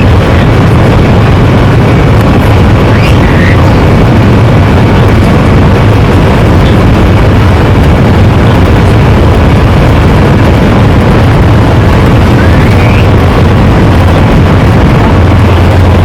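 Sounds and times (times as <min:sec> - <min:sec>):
jet engines roaring in cabin: 0:00.0 - 0:16.0.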